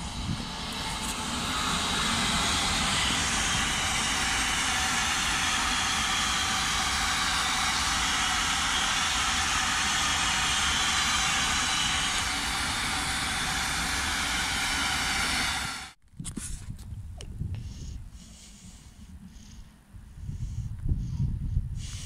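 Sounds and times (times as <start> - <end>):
electric locomotive passing: 0.0 - 16.0
train wheels rumbling on rail: 0.0 - 16.0.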